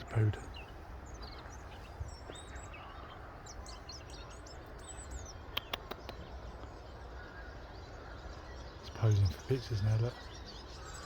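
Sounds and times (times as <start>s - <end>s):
songbird chirping: 0.0s - 11.0s
quick sharp clicks: 5.5s - 6.2s.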